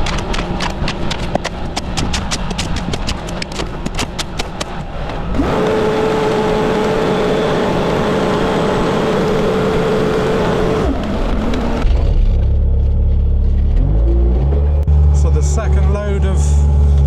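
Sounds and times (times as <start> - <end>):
machine hissing and whining: 5.4 - 11.0
low rumble: 10.8 - 17.0.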